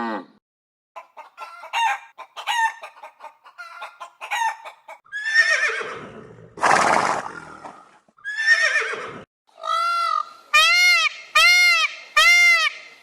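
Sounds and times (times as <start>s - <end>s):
horse whinnying: 5.2s - 9.2s.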